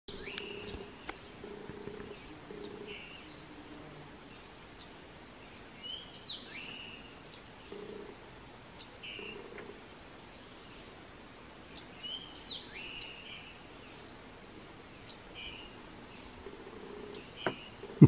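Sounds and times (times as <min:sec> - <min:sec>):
low buzz in bursts: 0:00.1 - 0:05.6
wild birds chirping: 0:00.1 - 0:18.0.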